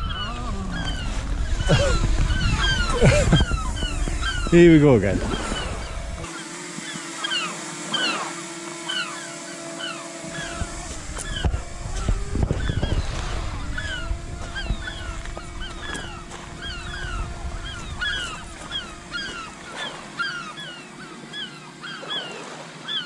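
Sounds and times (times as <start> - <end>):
wind rumble on microphone: 0.0 - 6.3, 10.3 - 19.4
drone propellers humming: 0.0 - 23.0
gulls alarm calls: 0.0 - 23.0.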